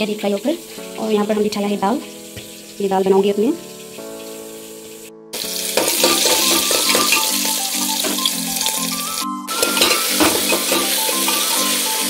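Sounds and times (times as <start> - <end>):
background music: 0.0 - 12.0
onions sizzling in hot oil: 0.0 - 12.0.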